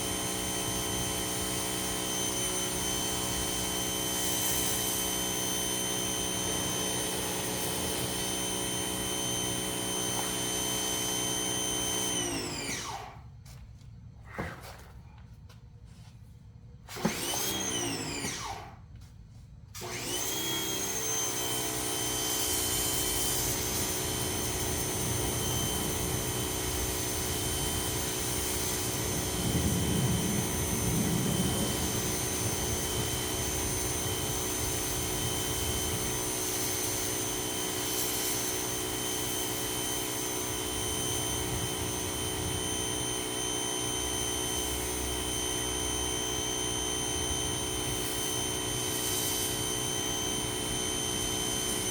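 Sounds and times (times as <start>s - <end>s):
pressure washer spraying: 0.0s - 12.1s, 20.8s - 43.1s, 47.7s - 51.9s
pressure washer motor whining: 0.0s - 13.3s, 16.9s - 18.8s, 19.8s - 51.9s.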